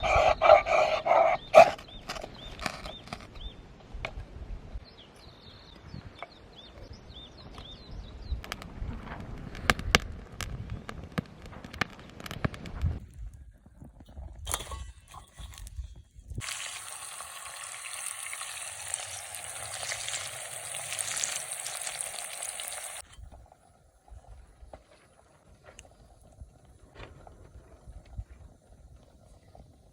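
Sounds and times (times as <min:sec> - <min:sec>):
wood fire crackling: 0:15.4 - 0:23.7
food sizzling in hot oil: 0:16.4 - 0:23.0.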